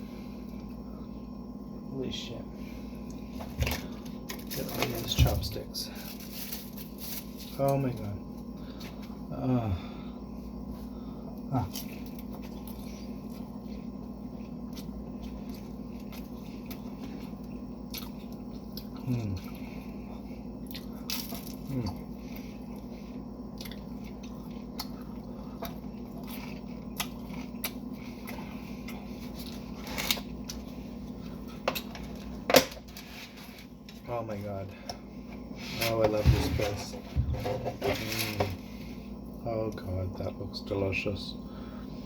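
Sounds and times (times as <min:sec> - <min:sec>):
steady low hum: 0:00.0 - 0:42.0
chewing and crunching food: 0:10.6 - 0:36.5.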